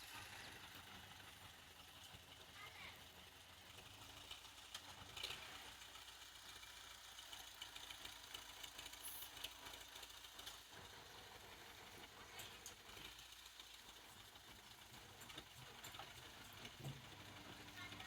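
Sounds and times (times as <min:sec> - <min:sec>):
faint tractor engine rumble: 0:00.0 - 0:18.0.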